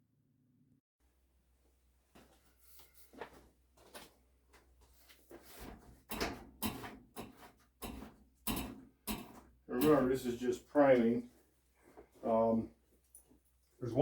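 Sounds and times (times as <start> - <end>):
objects knocking and clattering: 5.5 - 10.3.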